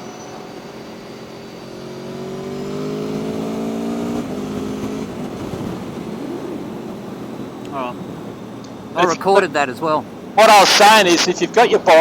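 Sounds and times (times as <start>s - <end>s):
motorcycle engine under throttle: 1.2s - 8.3s
wind rushing past microphone: 3.5s - 8.4s.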